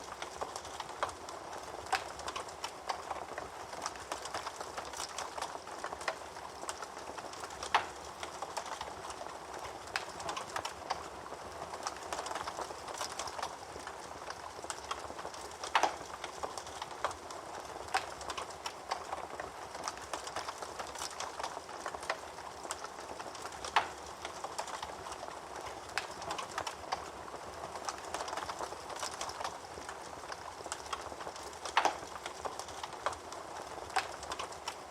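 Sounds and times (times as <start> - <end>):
loud fire snaps: 0.0 - 34.9
wood fire hissing and crackling: 0.0 - 34.9.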